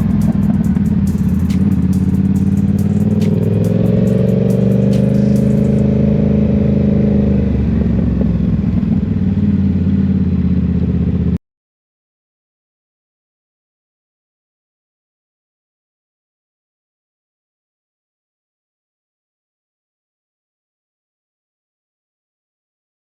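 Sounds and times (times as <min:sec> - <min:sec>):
motorcycle engine growl: 0:00.0 - 0:11.4.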